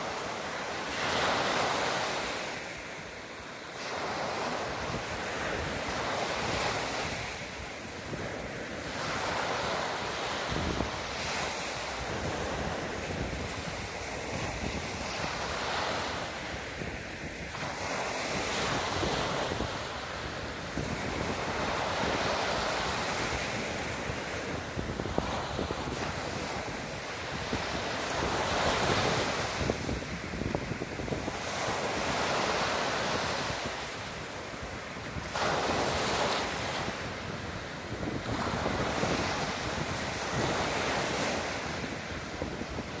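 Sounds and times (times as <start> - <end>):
surf breaking on beach: 0.0 - 43.0
wind buffeting microphone: 3.8 - 43.0.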